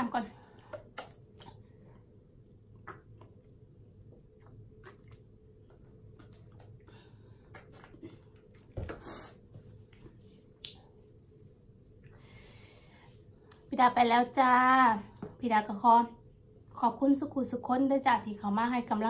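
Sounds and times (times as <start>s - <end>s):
chewing with wet mouth clicks: 0.6s - 1.6s, 2.7s - 6.8s.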